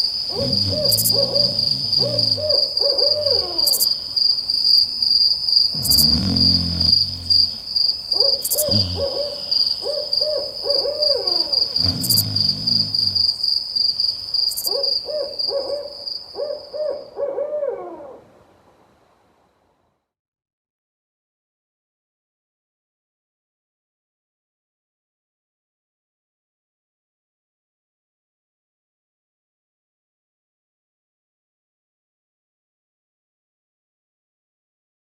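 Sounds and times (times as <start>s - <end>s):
owls hooting: 0.3s - 3.9s, 8.2s - 13.4s.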